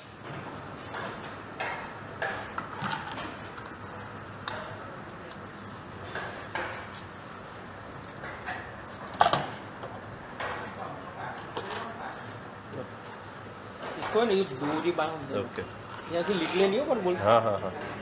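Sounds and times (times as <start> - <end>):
metal tools clattering: 16.2 - 17.0.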